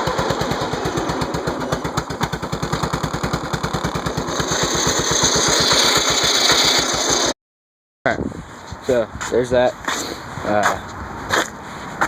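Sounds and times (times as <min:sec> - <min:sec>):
lawn tractor engine running: 0:00.0 - 0:07.3.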